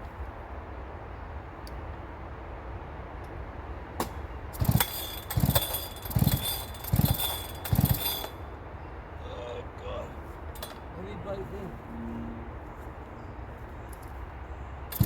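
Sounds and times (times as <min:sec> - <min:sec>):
chainsaw revving: 0:04.6 - 0:08.4.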